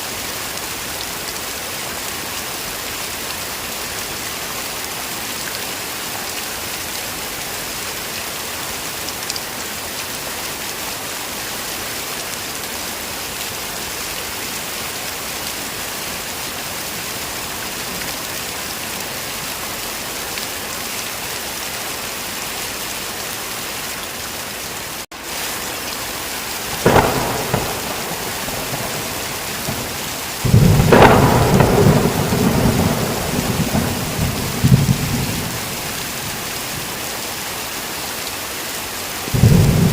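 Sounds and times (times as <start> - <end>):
heavy rain falling: 0.0 - 39.9
sharp thunder crack: 26.8 - 35.8
rumble of thunder: 26.8 - 35.9, 39.4 - 39.9.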